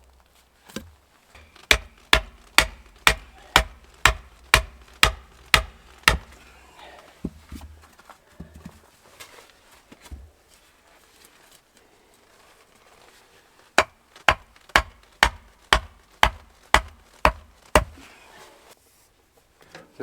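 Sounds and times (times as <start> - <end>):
hand tool blows: 1.4 - 6.7.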